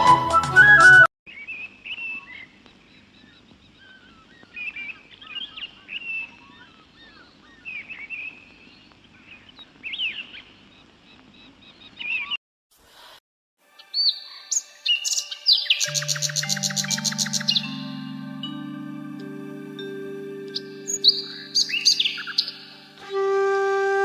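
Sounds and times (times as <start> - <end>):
faint background noise: 1.3 - 13.0
birds chirping and whistling: 14.0 - 24.0.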